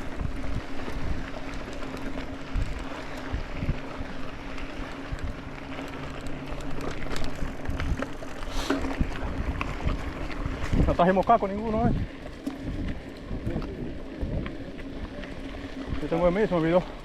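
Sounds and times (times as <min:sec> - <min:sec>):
bike rolling over rough trail: 0:00.0 - 0:17.0
wind on microphone: 0:07.5 - 0:15.1.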